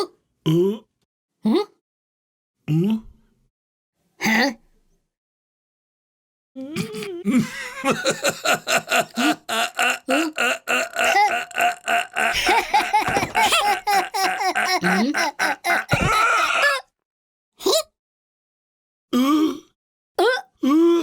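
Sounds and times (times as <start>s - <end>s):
cartoon voice laughing: 6.8s - 16.8s.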